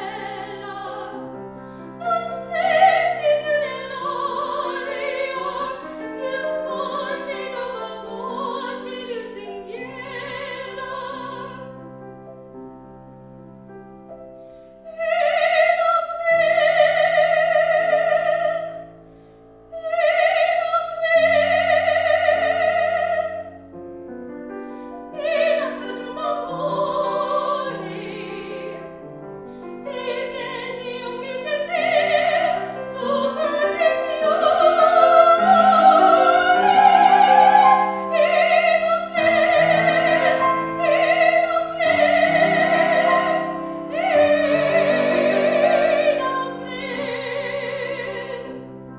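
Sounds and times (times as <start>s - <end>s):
piano accompaniment: 0.0s - 48.9s
operatic solo singing: 29.9s - 48.6s.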